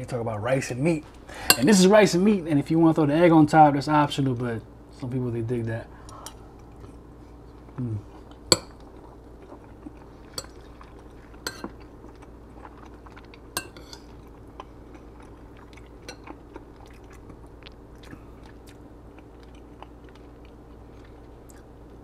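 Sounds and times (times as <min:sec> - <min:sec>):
steady low hum: 0:00.0 - 0:22.0
close-up chewing: 0:06.6 - 0:22.0.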